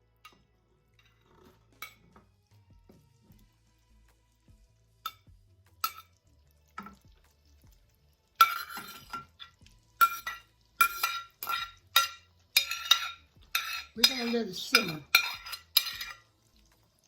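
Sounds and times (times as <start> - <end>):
metal utensil scraping a pan: 0.2 - 2.3, 5.0 - 6.2, 8.3 - 16.5.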